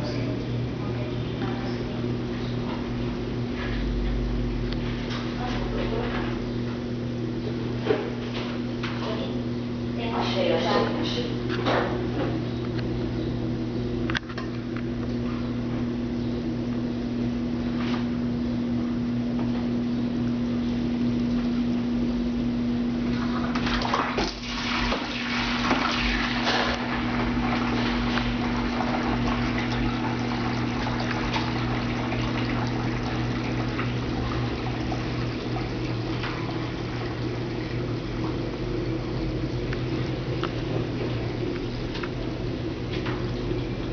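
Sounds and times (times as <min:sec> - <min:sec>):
drain pump humming: 0:00.0 - 0:43.9.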